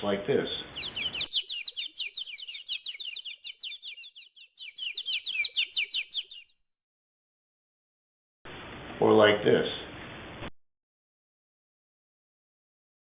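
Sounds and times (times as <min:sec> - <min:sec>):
small birds chirping: 0:00.8 - 0:06.5.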